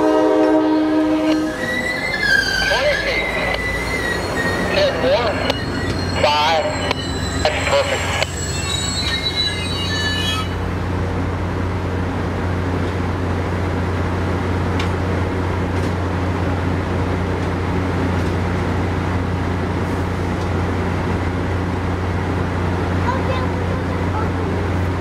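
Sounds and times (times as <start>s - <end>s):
standing train humming: 0.0s - 25.0s
train brakes squealing: 0.6s - 10.8s.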